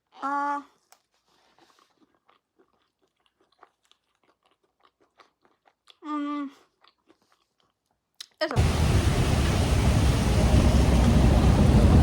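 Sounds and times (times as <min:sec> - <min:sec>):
person chewing and crunching food: 0:00.0 - 0:08.4.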